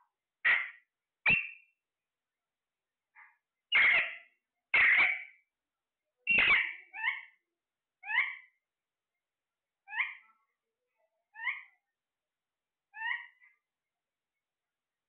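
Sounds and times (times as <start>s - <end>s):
parrot calls: 3.7s - 5.4s, 6.3s - 7.4s, 8.0s - 8.5s, 9.8s - 10.2s, 12.9s - 13.5s.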